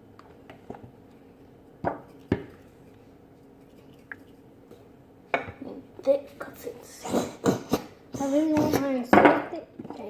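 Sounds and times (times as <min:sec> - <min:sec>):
slime being stirred: 0:00.4 - 0:05.0.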